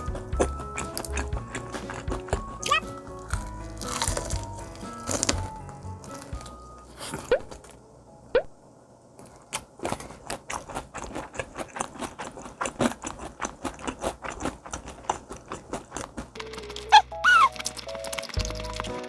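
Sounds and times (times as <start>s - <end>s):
crunching fried chicken: 0.0s - 7.8s, 9.2s - 19.0s
short rising squeaks: 16.9s - 17.6s.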